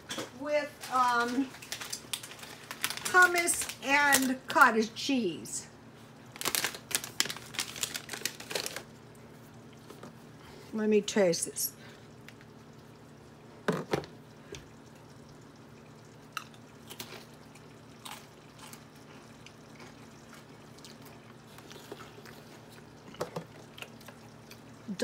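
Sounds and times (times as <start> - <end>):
faint steady hum: 0.0 - 25.0
cracker crunching: 0.8 - 4.4, 6.3 - 9.3, 16.3 - 24.8.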